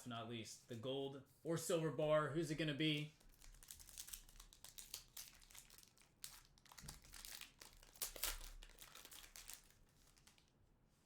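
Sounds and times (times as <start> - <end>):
card packaging crinkling: 3.2 - 10.5.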